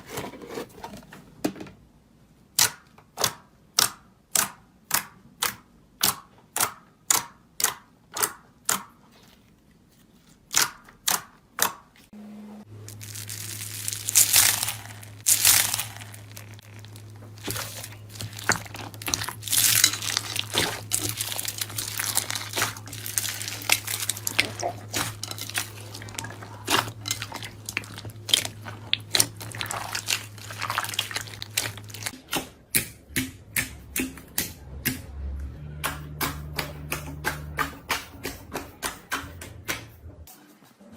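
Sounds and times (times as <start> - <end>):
crunchy material being crushed: 12.8 - 32.2.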